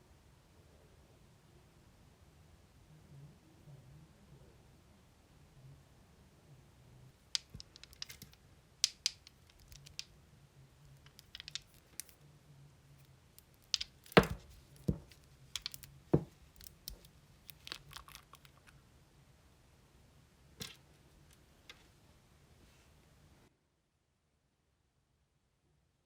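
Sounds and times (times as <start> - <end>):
small hard objects clicking: 7.2 - 10.1, 10.9 - 12.2, 13.4 - 18.8.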